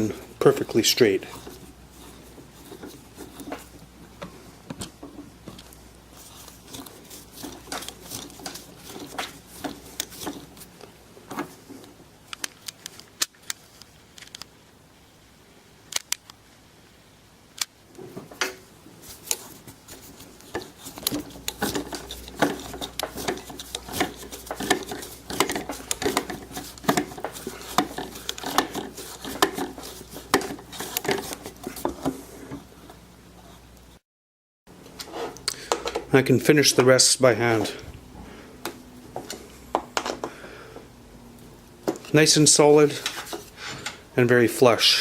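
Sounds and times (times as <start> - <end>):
tools and wood handled on workbench: 0.0 - 14.4, 17.9 - 33.7, 34.8 - 37.9, 41.8 - 44.1.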